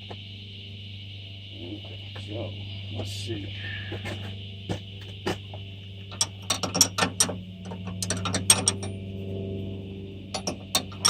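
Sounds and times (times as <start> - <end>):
metal hand tools clinking: 7.9 - 9.0.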